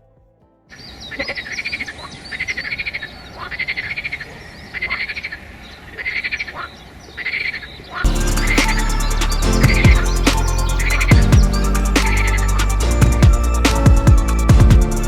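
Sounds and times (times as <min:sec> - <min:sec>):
bird chirps: 0:00.7 - 0:14.6
frogs croaking: 0:00.8 - 0:08.6.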